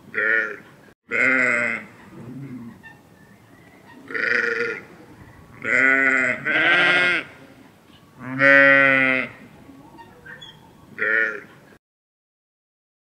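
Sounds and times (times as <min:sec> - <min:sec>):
sheep bleating: 0:00.2 - 0:01.9, 0:04.1 - 0:04.9, 0:05.6 - 0:07.4, 0:08.2 - 0:09.4, 0:11.0 - 0:11.5.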